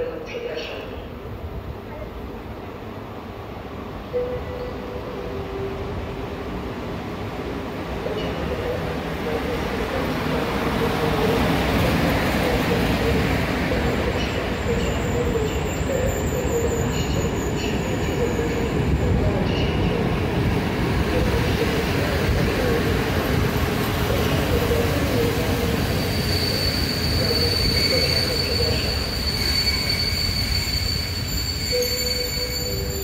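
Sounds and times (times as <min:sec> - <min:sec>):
high wheel squeal: 0:25.6 - 0:33.0.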